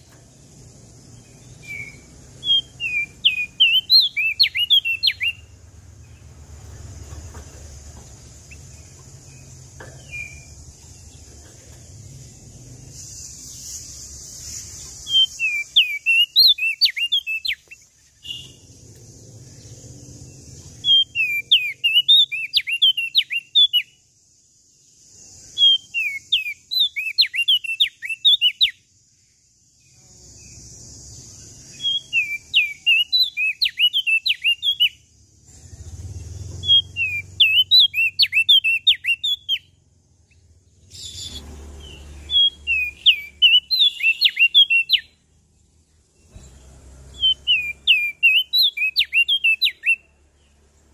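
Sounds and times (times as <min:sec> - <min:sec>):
bird singing whistled phrases: 0:01.5 - 0:05.5, 0:14.6 - 0:18.6, 0:20.8 - 0:24.0, 0:25.4 - 0:28.9, 0:31.6 - 0:35.0, 0:36.6 - 0:39.7, 0:40.9 - 0:45.2, 0:47.2 - 0:50.1
steady high hiss: 0:05.4 - 0:20.8.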